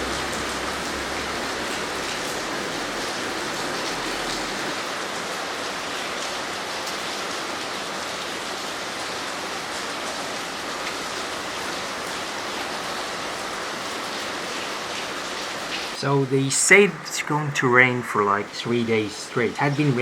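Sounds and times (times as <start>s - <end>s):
heavy rain pattering: 0.0s - 20.0s.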